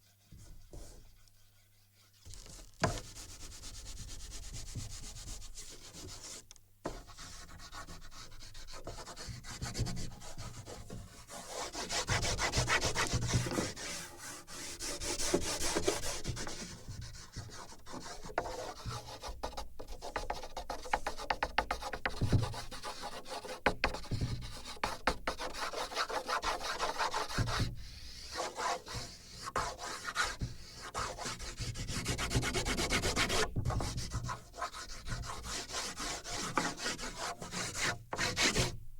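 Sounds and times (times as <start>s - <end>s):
drawing tool scraping paper: 25.4s - 38.7s.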